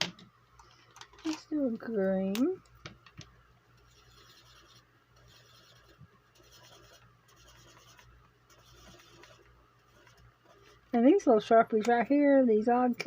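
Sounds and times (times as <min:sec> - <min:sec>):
marker scratching on paper: 0:03.9 - 0:10.8.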